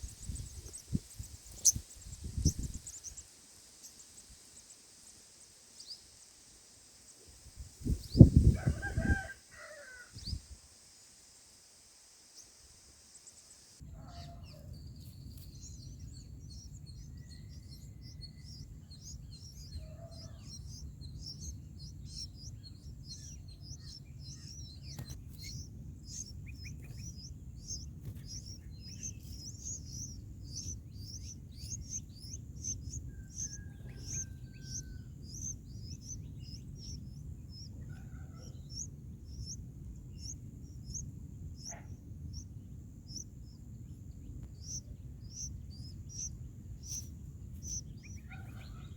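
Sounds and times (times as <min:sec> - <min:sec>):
small birds chirping: 0:00.0 - 0:48.9
steady low rumble: 0:15.1 - 0:37.9, 0:38.5 - 0:48.9
whistled bird notes: 0:15.5 - 0:37.0.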